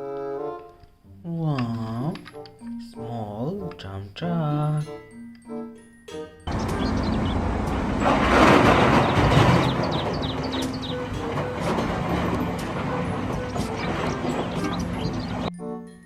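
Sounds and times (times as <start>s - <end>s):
vehicle-like rumbling: 6.5s - 15.5s.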